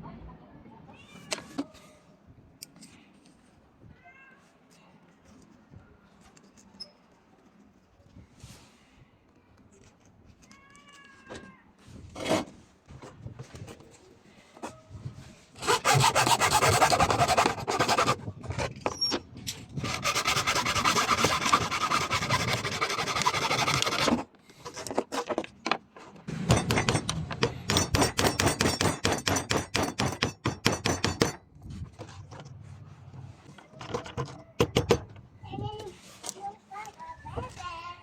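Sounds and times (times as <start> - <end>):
hand tool rasping on workpiece: 15.6 - 18.2, 19.8 - 24.2, 27.7 - 31.3.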